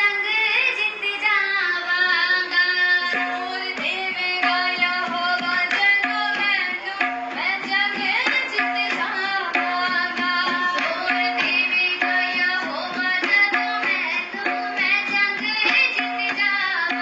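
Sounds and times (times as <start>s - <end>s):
tabla beat: 0.0s - 17.0s.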